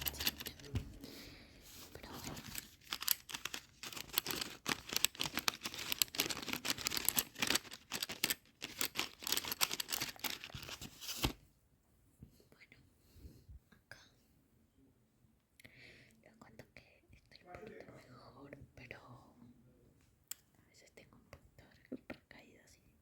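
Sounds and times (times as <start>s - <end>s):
soft whispering: 0.0s - 2.8s, 12.4s - 14.3s, 16.0s - 23.0s
painting materials crinkling: 0.0s - 11.4s.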